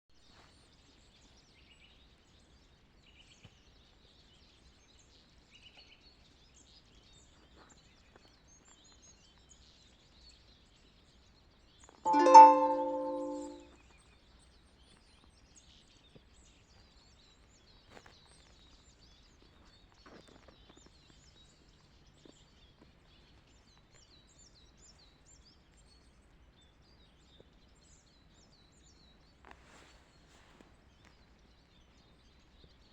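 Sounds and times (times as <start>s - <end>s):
plucked string note: 12.1s - 13.6s.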